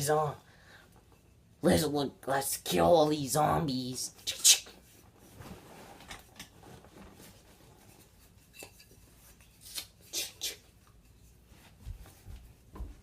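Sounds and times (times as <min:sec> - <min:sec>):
faint rustling: 0:04.8 - 0:09.6.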